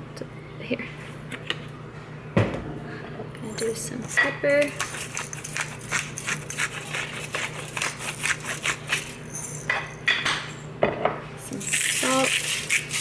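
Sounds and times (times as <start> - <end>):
pepper grinder crunching clicks: 11.6 - 13.0.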